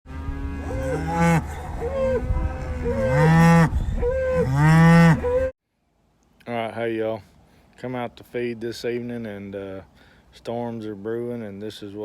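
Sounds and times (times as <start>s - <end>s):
cattle mooing: 0.1s - 5.5s.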